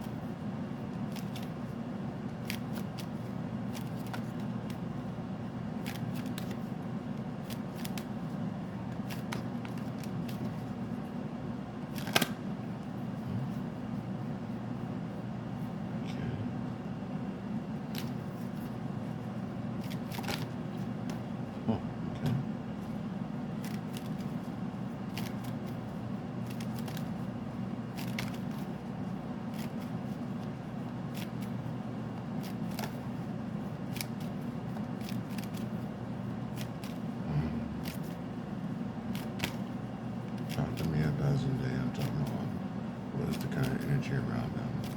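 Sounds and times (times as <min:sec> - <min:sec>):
steady low hum: 0:00.0 - 0:44.9
cards being shuffled: 0:01.0 - 0:01.7, 0:02.3 - 0:04.8, 0:05.8 - 0:06.8, 0:07.4 - 0:08.3, 0:08.9 - 0:10.8, 0:11.9 - 0:12.4, 0:17.8 - 0:18.8, 0:19.8 - 0:21.2, 0:23.6 - 0:28.9, 0:29.5 - 0:38.3, 0:39.0 - 0:41.2, 0:41.9 - 0:42.5, 0:43.2 - 0:44.9.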